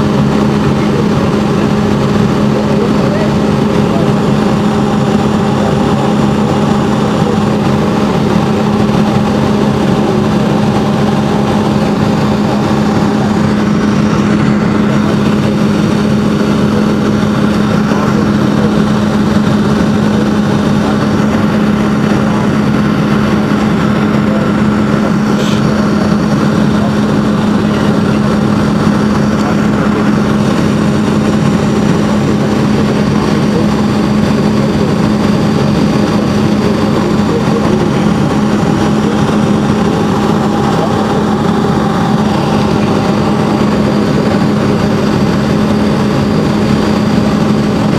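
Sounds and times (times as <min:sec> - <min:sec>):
jet engines drone in cabin: 0:00.0 - 0:47.9.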